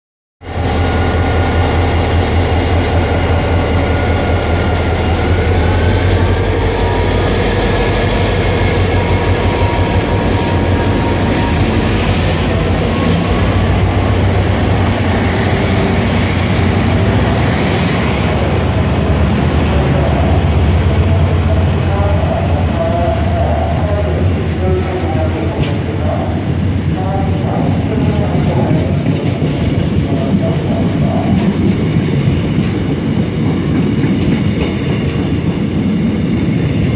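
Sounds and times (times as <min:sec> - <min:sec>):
train whine rising in pitch: 0:00.4 - 0:26.6
train low rumble: 0:00.4 - 0:36.9.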